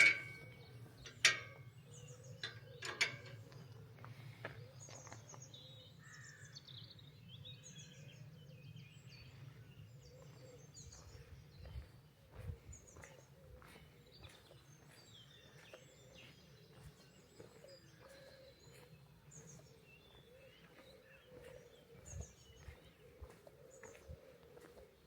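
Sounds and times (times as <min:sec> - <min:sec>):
faint birds chirping: 0:00.0 - 0:25.0
soft footsteps: 0:11.1 - 0:25.0.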